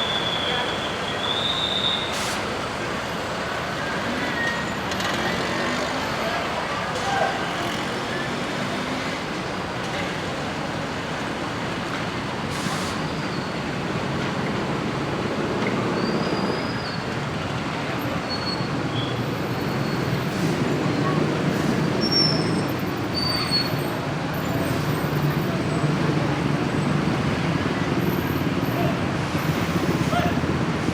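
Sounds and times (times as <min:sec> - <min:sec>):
bus engine low drone: 0:19.4 - 0:30.9.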